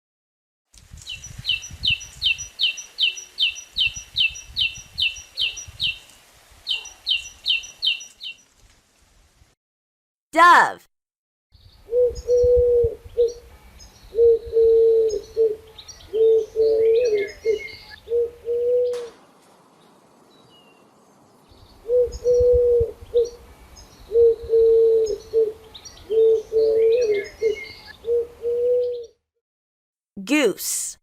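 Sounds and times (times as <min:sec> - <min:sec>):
small birds chirping: 0:00.9 - 0:08.6, 0:25.0 - 0:28.2
dove cooing: 0:11.9 - 0:13.5, 0:14.1 - 0:19.2, 0:21.8 - 0:23.4, 0:24.1 - 0:29.2.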